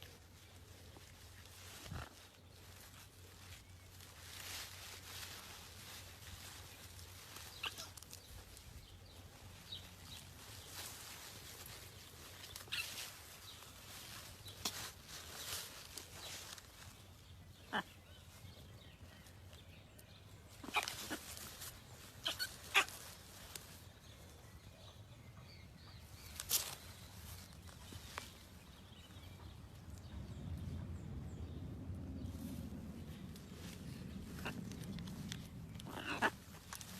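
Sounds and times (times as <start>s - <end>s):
parrots squawking: 22.2s - 23.0s, 35.8s - 36.8s.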